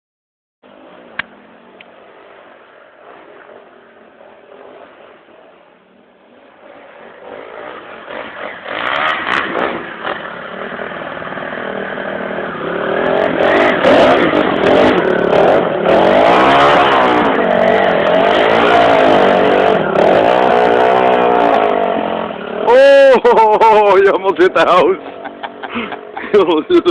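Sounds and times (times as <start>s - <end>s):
dirt bike engine revving: 6.4s - 26.9s.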